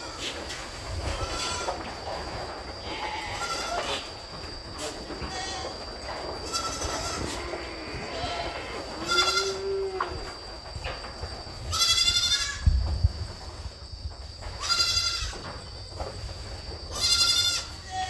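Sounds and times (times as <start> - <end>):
goats bleating: 1.1 - 1.8, 2.8 - 4.1, 5.2 - 5.8, 6.4 - 10.2, 11.7 - 12.6, 14.6 - 15.4, 16.9 - 18.0.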